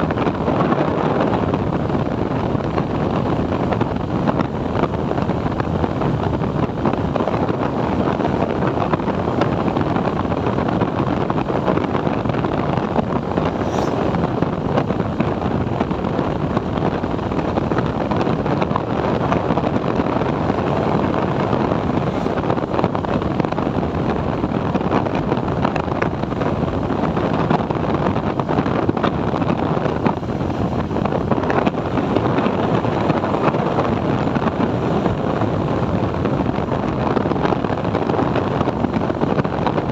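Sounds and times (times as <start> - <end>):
road noise: 0.0 - 39.9
wind rushing over microphone: 0.0 - 39.9.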